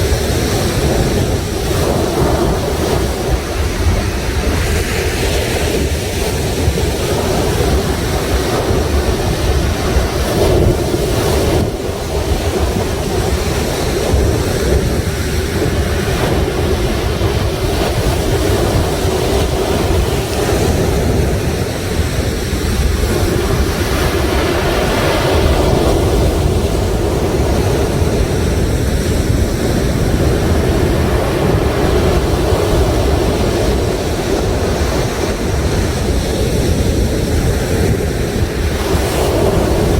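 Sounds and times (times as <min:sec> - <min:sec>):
sea waves washing onto shore: 0:00.0 - 0:39.9
wind rumble on microphone: 0:00.0 - 0:39.9.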